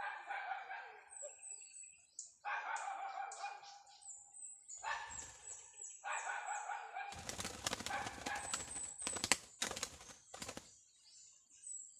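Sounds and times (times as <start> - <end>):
bird wings flapping: 7.1 - 10.7.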